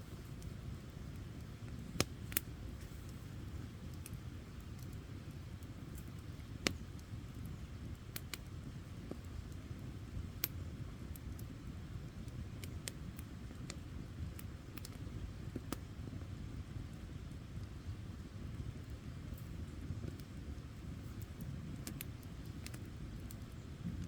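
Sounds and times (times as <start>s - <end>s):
campfire burning: 0.0s - 24.0s
wood crackling and popping: 0.0s - 24.0s.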